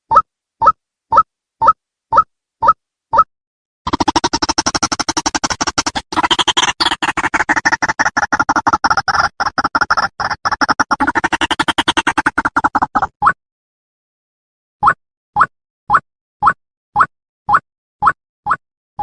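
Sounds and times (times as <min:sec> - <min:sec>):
waterhen calling rapid notes: 0:03.9 - 0:13.1.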